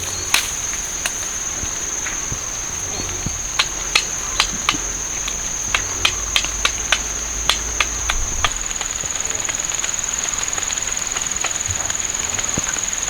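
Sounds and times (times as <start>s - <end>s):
sharp irregular knocks: 0.0s - 8.6s
insects droning: 0.0s - 13.0s.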